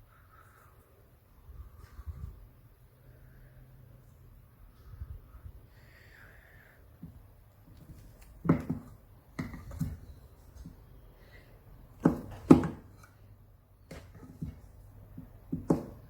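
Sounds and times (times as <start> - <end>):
knocks and taps of handling: 7.0 - 10.8, 13.9 - 16.0.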